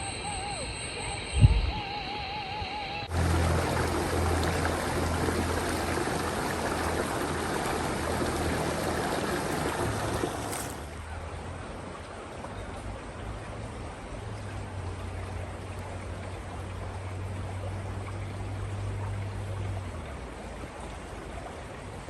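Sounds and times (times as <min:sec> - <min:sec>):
low hum: 0:00.0 - 0:10.9
running water rushing: 0:03.1 - 0:22.0.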